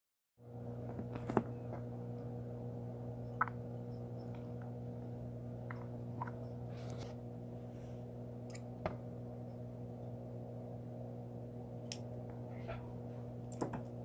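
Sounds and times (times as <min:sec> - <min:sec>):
low electrical hum: 0:00.4 - 0:14.0.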